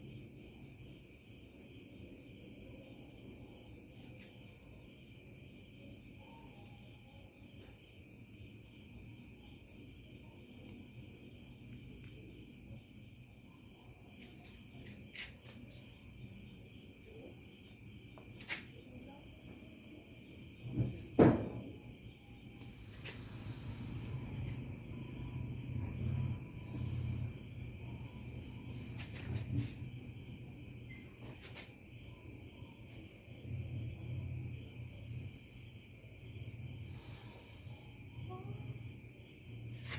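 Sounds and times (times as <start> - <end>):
insects trilling: 0.0 - 39.9
sharp knock: 20.7 - 21.8.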